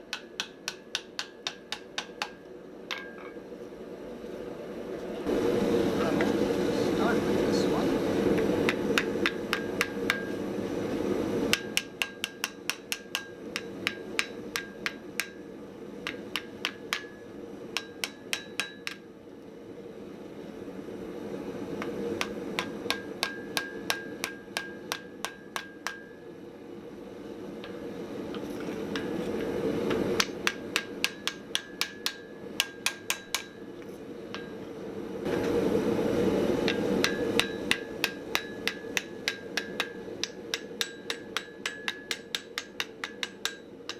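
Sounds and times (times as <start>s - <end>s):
hammer striking steel on anvil: 0.0s - 3.5s, 8.3s - 10.6s, 11.5s - 19.1s, 21.8s - 26.3s, 27.6s - 34.8s, 36.6s - 43.9s.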